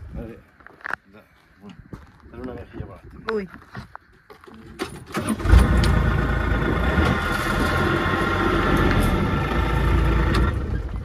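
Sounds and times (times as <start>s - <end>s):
vehicle engine running: 5.4s - 11.0s.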